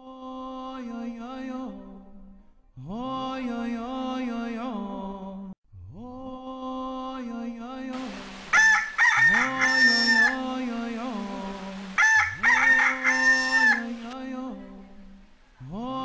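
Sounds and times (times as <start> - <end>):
rooster crowing: 8.1 - 10.5, 11.5 - 14.2.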